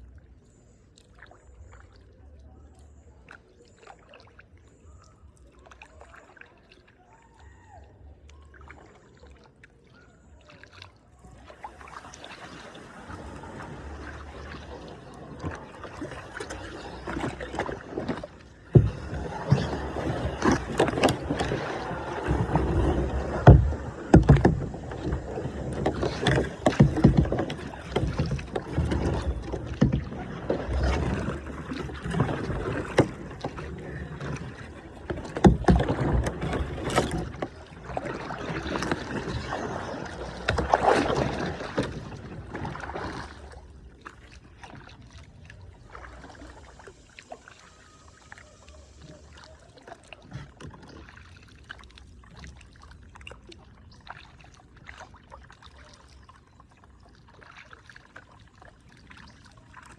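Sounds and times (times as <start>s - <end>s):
paddle splashes: 0.0s - 59.9s
water lapping: 0.0s - 59.9s
water rushing against hull: 0.0s - 59.9s.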